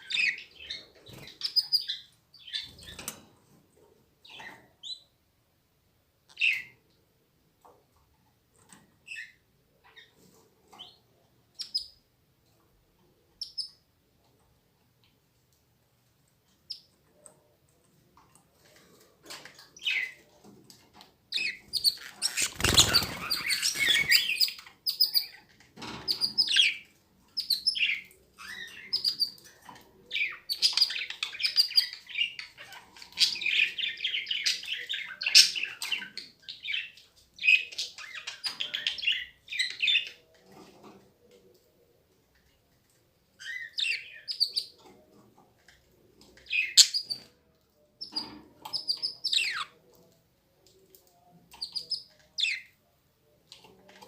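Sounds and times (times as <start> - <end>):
canaries chirping: 0.0 - 3.2, 6.3 - 6.8, 8.6 - 12.0, 13.4 - 13.8, 18.4 - 41.4, 43.3 - 47.4, 48.0 - 50.0, 51.5 - 52.8.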